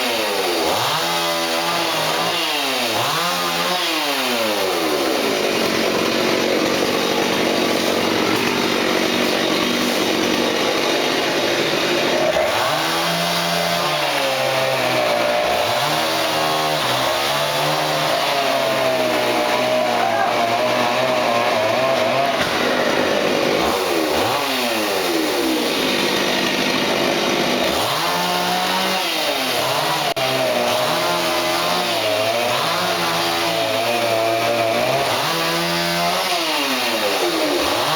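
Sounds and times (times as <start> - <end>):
chainsaw cutting wood: 0.0 - 37.9.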